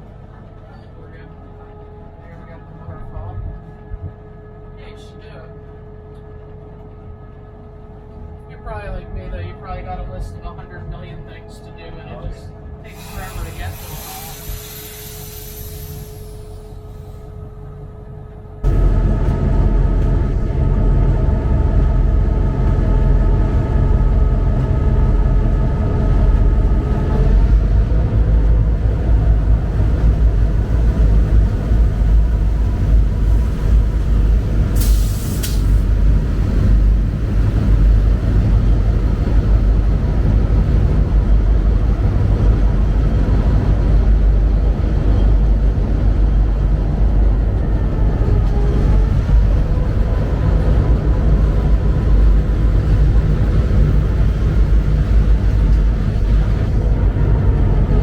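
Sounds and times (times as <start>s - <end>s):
diesel locomotive engine rumbling: 0.0s - 58.0s
rail and wheel noise: 0.0s - 58.0s
air hiss: 12.9s - 17.1s, 34.7s - 35.9s.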